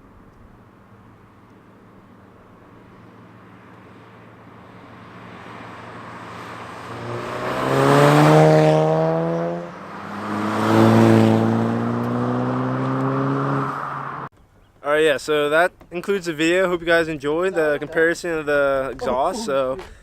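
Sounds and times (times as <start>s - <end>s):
car exhaust accelerating hard: 4.4s - 14.3s.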